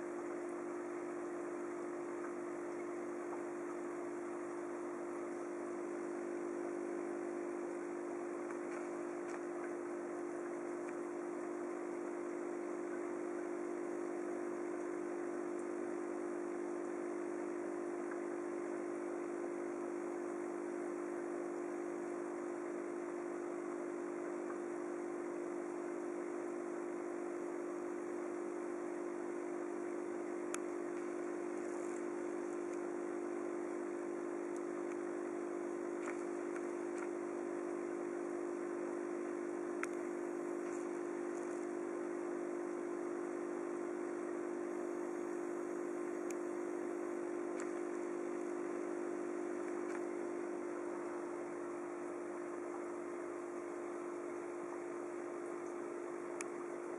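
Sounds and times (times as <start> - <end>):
aquarium pump humming: 0.0 - 56.9
faint ticks: 0.1 - 19.8, 20.7 - 25.4, 30.4 - 38.1, 39.2 - 44.2, 45.6 - 51.5, 54.0 - 56.9.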